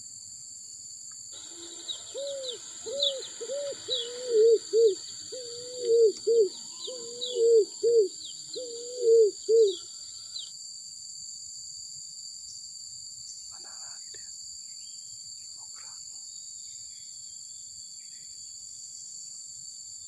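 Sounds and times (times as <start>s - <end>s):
pigeon cooing: 1.4s - 9.9s.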